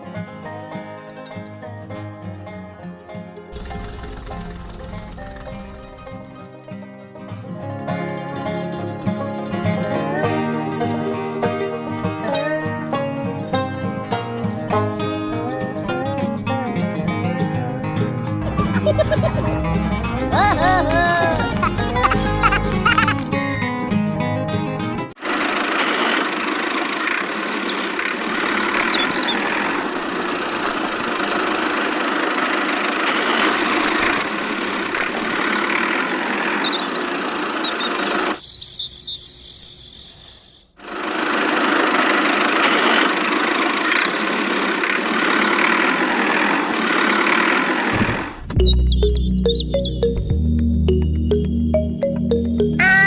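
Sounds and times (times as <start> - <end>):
small motor buzzing: 22.0 - 23.1, 40.8 - 48.4.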